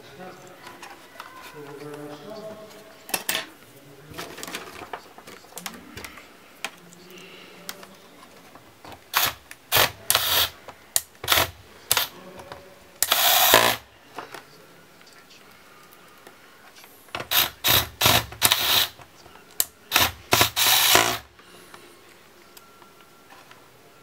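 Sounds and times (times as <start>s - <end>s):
hands handling a laptop: 0.5s - 3.5s, 4.1s - 9.1s
plastic and metal clicks: 4.1s - 14.5s, 15.8s - 21.2s.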